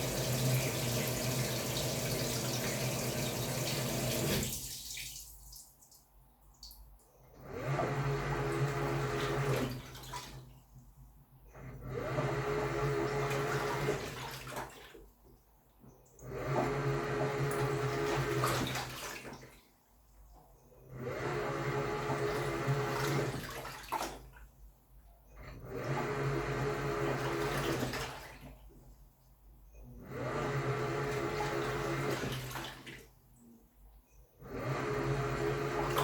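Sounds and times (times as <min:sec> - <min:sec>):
washing machine churning water: 0:00.0 - 0:05.6, 0:07.3 - 0:10.6, 0:11.5 - 0:15.2, 0:16.1 - 0:19.7, 0:20.8 - 0:24.7, 0:25.3 - 0:28.8, 0:29.9 - 0:33.2, 0:34.4 - 0:36.0.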